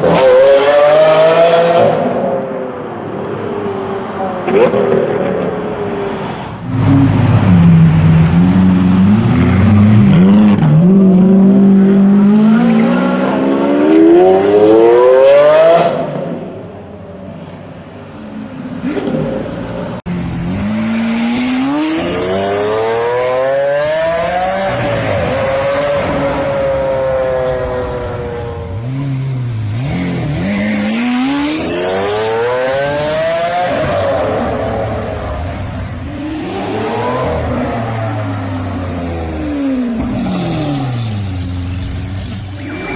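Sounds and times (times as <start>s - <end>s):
car revving and accelerating: 0.0s - 16.6s, 18.8s - 42.9s
sports car engines accelerating: 17.4s - 42.9s.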